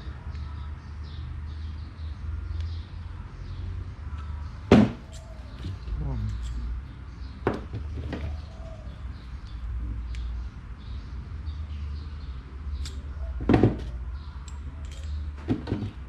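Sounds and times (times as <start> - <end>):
clicks and knocks of small parts: 12.8 - 13.1, 13.7 - 16.0.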